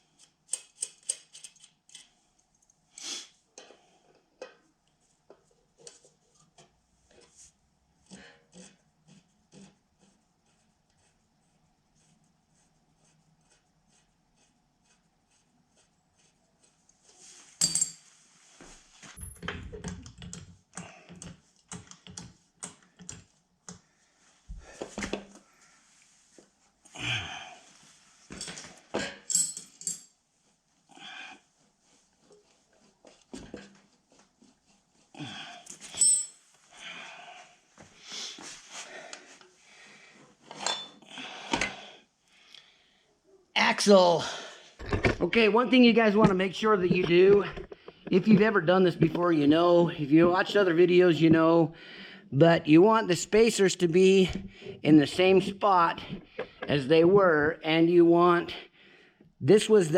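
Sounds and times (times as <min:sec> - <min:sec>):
metallic clink with ring: 0:17.6 - 0:18.0, 0:29.3 - 0:30.1, 0:35.9 - 0:36.4
steel parts clinking and scraping: 0:17.6 - 0:18.1, 0:28.4 - 0:30.2, 0:35.7 - 0:36.4, 0:40.5 - 0:41.0.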